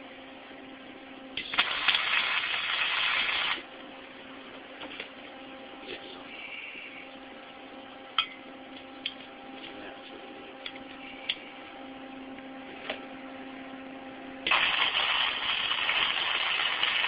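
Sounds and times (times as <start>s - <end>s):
welder electrical hum: 0.0s - 17.0s
welding arc crackling hiss: 1.4s - 3.7s, 14.4s - 17.0s.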